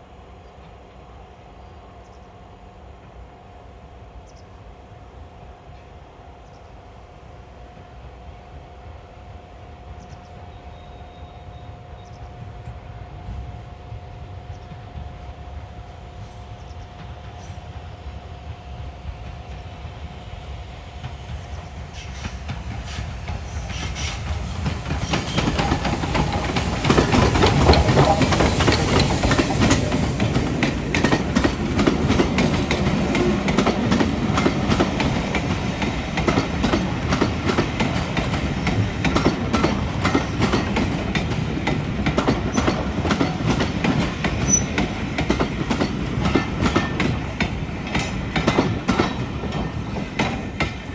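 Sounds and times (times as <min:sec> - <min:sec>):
train passing: 0:00.0 - 0:50.9
train wheels clattering over rail joints: 0:21.0 - 0:50.9.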